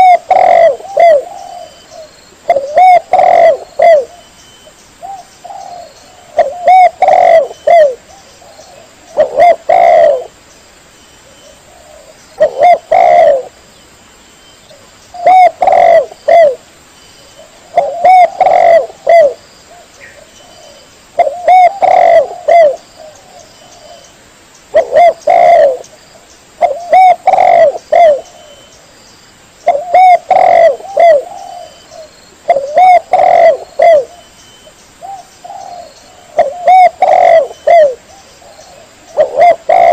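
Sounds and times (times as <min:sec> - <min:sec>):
dove cooing: 0:00.0 - 0:04.3, 0:05.0 - 0:10.4, 0:11.2 - 0:13.6, 0:14.7 - 0:16.6, 0:17.3 - 0:24.1, 0:24.7 - 0:25.9, 0:26.6 - 0:28.7, 0:29.6 - 0:34.3, 0:35.0 - 0:39.9.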